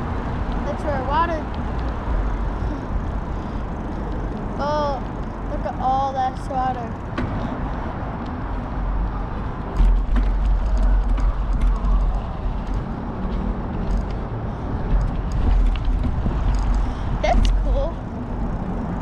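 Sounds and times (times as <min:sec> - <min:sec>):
bicycle clicks and rattles: 0:00.0 - 0:06.0, 0:06.8 - 0:19.0
wind rumble on microphone: 0:00.0 - 0:19.0
bicycle tyre noise: 0:07.0 - 0:19.0.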